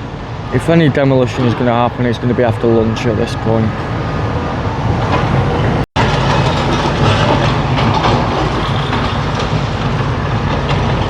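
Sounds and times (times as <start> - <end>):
diesel engine running: 0.0 - 11.0
demolition knocks and crunches: 5.7 - 11.0.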